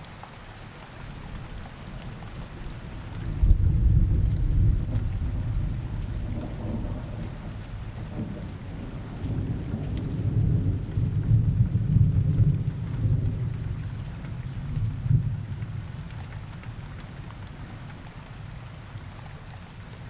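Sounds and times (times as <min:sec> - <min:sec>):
steady rain: 0:00.0 - 0:20.0
low rumbling thunder: 0:01.9 - 0:17.0.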